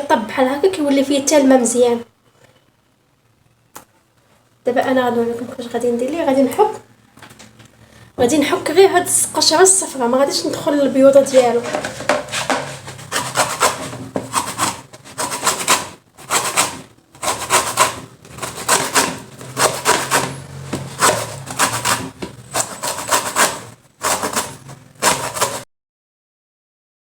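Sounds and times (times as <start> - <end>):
lemon peel scraping on grater: 11.2 - 25.6.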